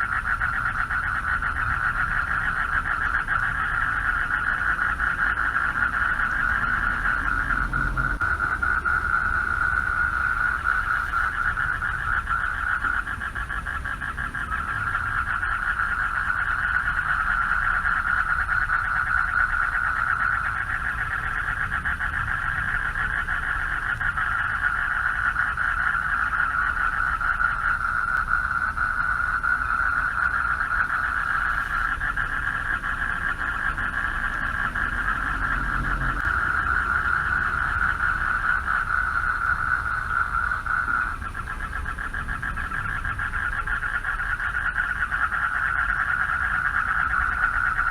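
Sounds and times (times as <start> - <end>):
frogs trilling: 0.0 - 47.9
low rumble: 5.6 - 12.2, 30.8 - 45.0.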